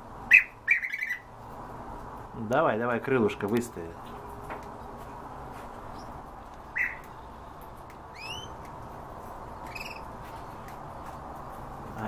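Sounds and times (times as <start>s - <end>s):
high bird calls: 0.3s - 1.3s, 5.8s - 7.4s, 8.1s - 8.7s, 9.5s - 10.6s.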